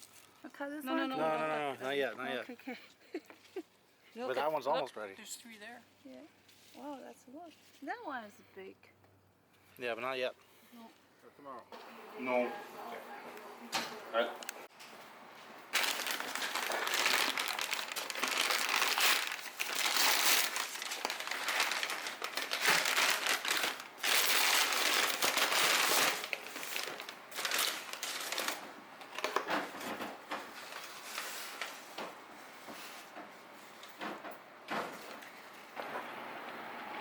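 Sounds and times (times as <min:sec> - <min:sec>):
rustling and crinkling: 0:00.0 - 0:00.6, 0:06.0 - 0:08.0, 0:14.4 - 0:36.2.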